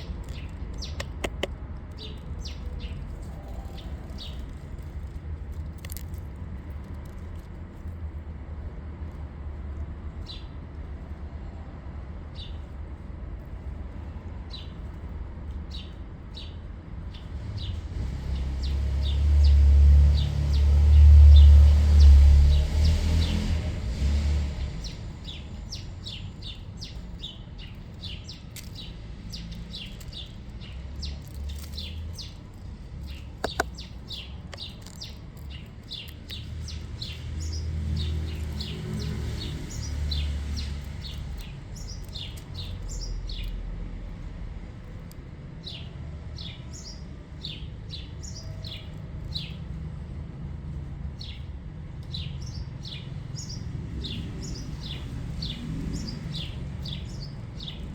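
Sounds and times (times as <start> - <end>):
small birds chirping: 0.0 - 8.7, 10.2 - 11.1, 12.3 - 57.9
sharp click: 33.4 - 33.9.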